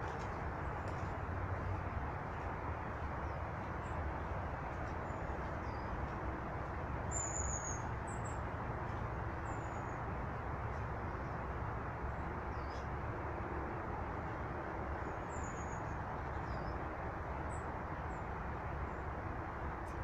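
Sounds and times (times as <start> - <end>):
small birds chirping: 3.2 - 6.2, 7.1 - 8.5, 12.1 - 12.9.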